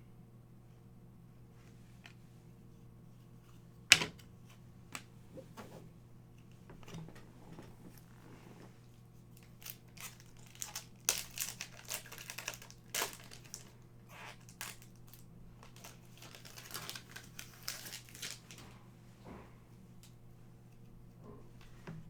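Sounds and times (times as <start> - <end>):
wrapper tearing and crinkling: 9.4 - 18.6.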